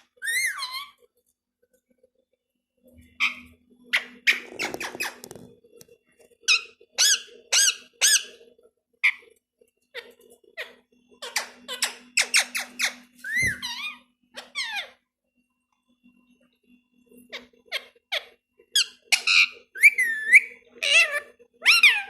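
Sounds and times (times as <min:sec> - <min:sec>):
parrot squeaky chirping calls: 0:00.1 - 0:01.0, 0:03.2 - 0:05.3, 0:06.5 - 0:08.4, 0:10.0 - 0:15.0, 0:17.3 - 0:22.0.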